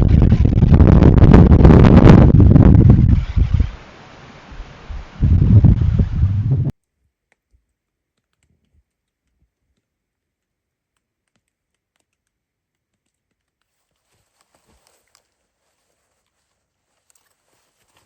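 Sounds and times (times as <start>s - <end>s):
wind buffeting microphone: 0.0s - 3.8s, 4.5s - 6.7s
faint clicks and crunches: 6.8s - 18.0s.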